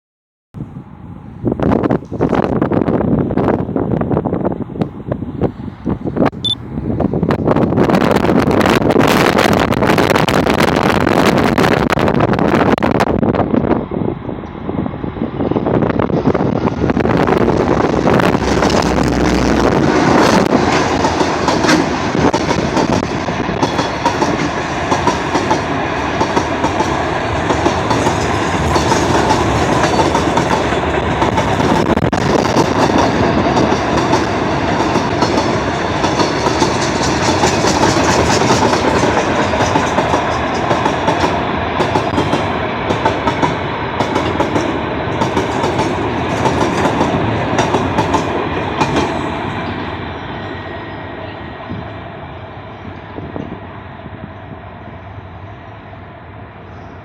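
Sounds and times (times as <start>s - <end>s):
freight train rumbling past: 0.6s - 57.0s
wheels clacking over rail joints: 17.4s - 49.8s.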